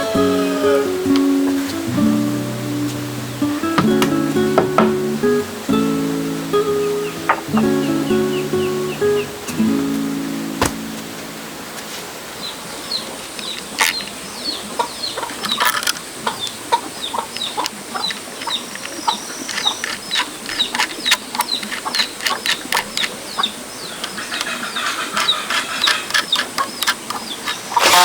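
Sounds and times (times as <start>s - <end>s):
chicks peeping: 0.0s - 9.9s, 16.2s - 28.0s.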